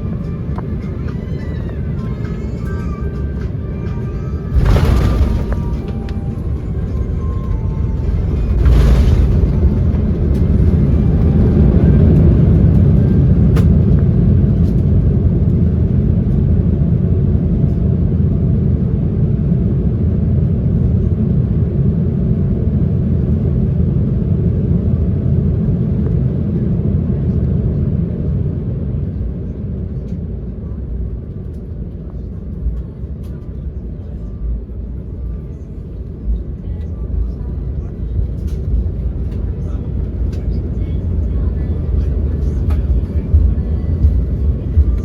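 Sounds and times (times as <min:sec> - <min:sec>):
aircraft cabin low rumble: 0:00.0 - 0:45.0.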